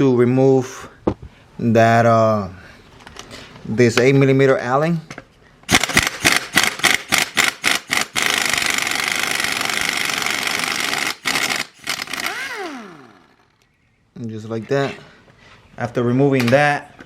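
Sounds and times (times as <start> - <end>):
impact wrench hammering: 5.7 - 13.3.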